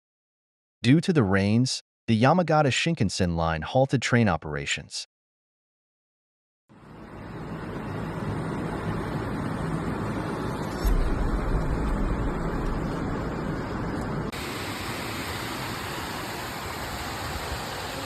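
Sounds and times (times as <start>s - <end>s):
steady rushing noise: 7.6s - 18.0s
low rumble: 10.2s - 14.3s.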